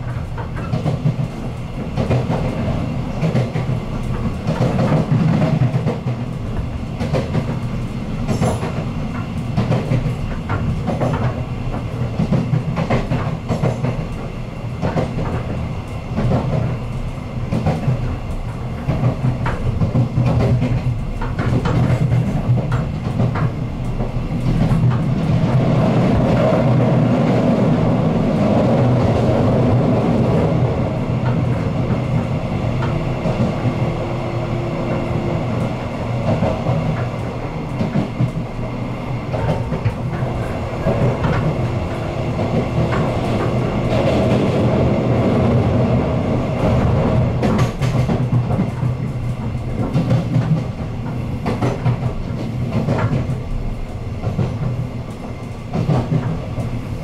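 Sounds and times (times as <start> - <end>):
train wheels rumbling on rails: 0.0 - 57.0
wheels clicking over rail joints: 16.2 - 27.0, 46.6 - 56.8.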